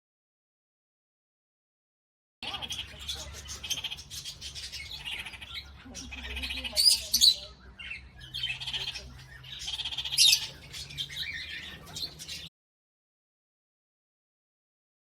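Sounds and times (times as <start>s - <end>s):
birds calling: 2.4s - 12.5s.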